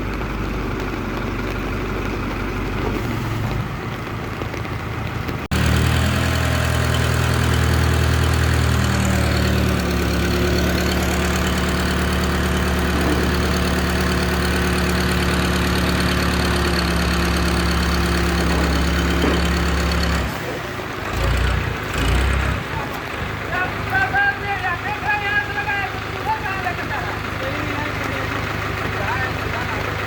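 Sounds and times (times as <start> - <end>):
heavy diesel engine running: 0.0 - 30.0.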